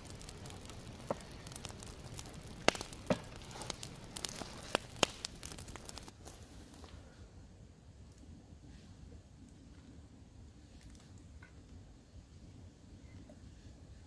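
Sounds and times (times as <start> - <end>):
campfire crackling and popping: 0.0 - 6.9
low hiss: 0.0 - 14.0.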